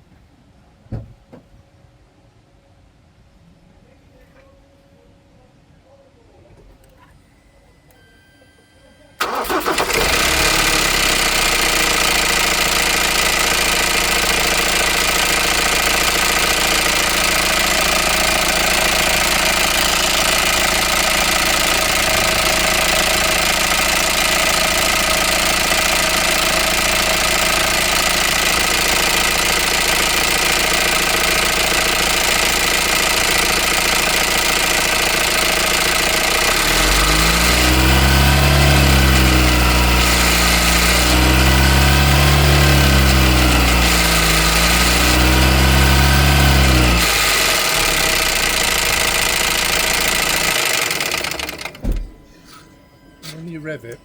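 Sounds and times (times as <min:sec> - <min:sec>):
engine revving: 0:09.2 - 0:51.8
diesel engine rattling idle: 0:09.2 - 0:52.1.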